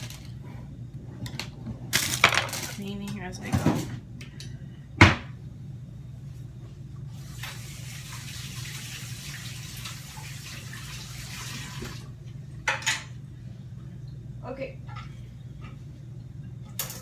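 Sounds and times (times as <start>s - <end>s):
steady low hum: 0.0s - 7.5s, 12.0s - 17.0s.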